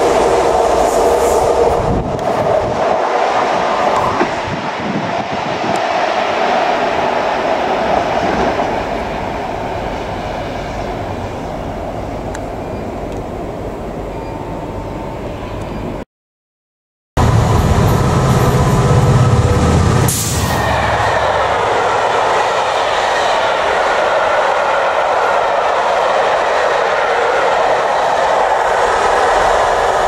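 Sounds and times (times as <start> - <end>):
train engine and rail noise: 0.0 - 16.0, 17.2 - 30.0
wheels rumbling on rails: 0.0 - 16.0, 17.2 - 30.0.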